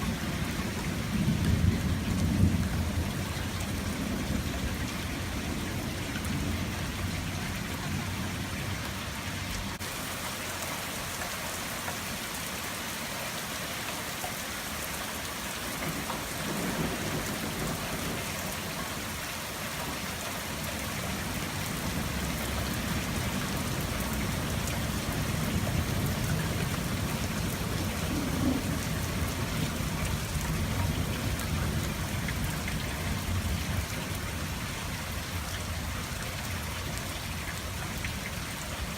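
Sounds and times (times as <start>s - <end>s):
thunder rumbling: 0.0s - 8.7s, 15.8s - 19.2s, 20.6s - 34.6s
rain pattering on surfaces: 0.0s - 38.9s.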